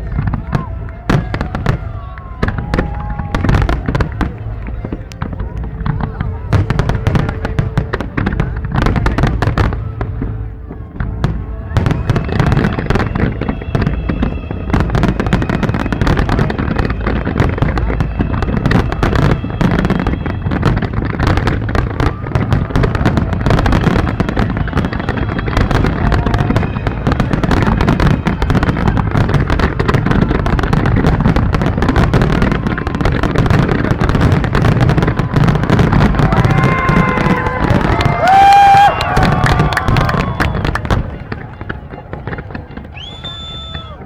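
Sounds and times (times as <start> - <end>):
fireworks bangs and crackling: 0.0 - 44.0.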